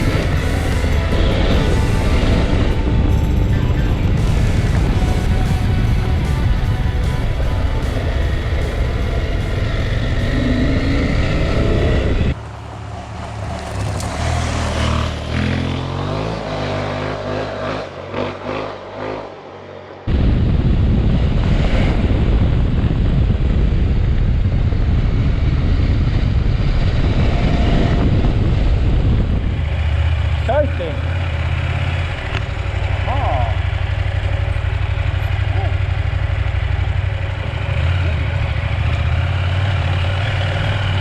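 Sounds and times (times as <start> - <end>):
wind noise on microphone: 0.0 - 12.4, 20.1 - 30.4
motorcycle engine revving: 0.0 - 41.0.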